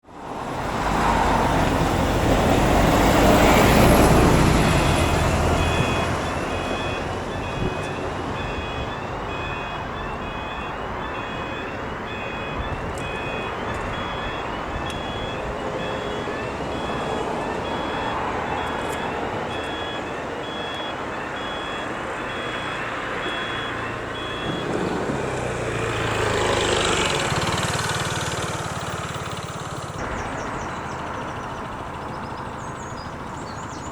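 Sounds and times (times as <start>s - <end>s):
road vehicles passing: 0.0s - 33.9s
level crossing two-tone beeps: 4.7s - 25.1s.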